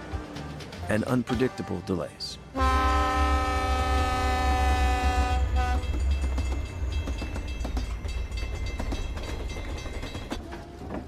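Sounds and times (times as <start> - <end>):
train horn: 2.5 - 6.0
train rumbling past: 2.5 - 11.0
train wheel clacks: 5.1 - 11.0.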